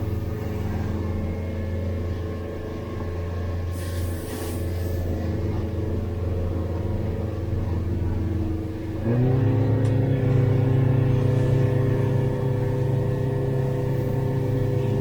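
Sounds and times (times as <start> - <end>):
boat engine throttling up: 0.0 - 15.0.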